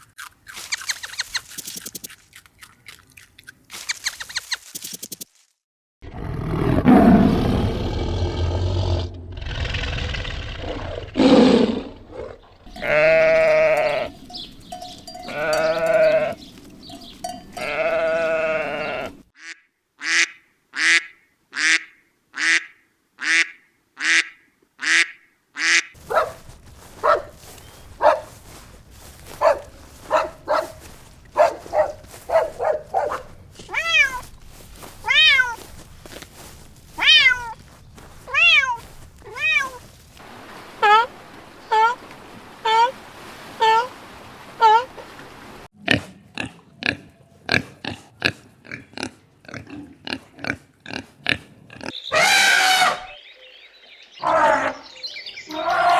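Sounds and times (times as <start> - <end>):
goats bleating: 12.7 - 19.2, 26.2 - 40.0
short repeated animal calls: 23.2 - 37.6.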